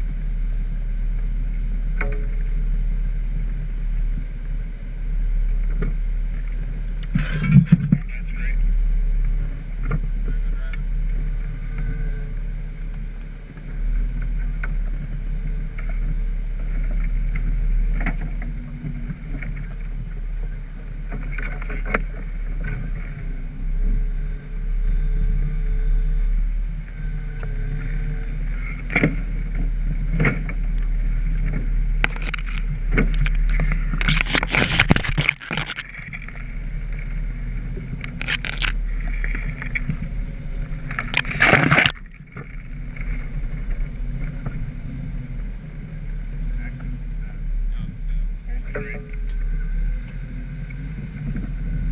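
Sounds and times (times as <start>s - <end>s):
engine running low: 0.0s - 51.9s
knocks and scrapes: 7.1s - 8.2s, 27.4s - 44.8s
burst of clatter: 32.0s - 36.5s.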